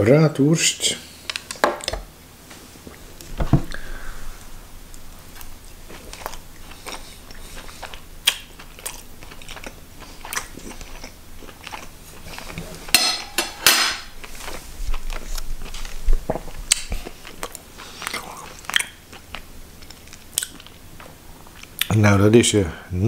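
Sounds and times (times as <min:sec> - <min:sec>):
chewing sausage: 0:04.9 - 0:12.9, 0:14.1 - 0:21.9.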